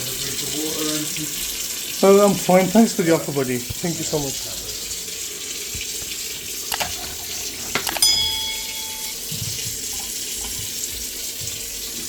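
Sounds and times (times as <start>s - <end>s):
tap running: 3.6s - 12.0s
sharp metallic clink: 7.9s - 9.2s.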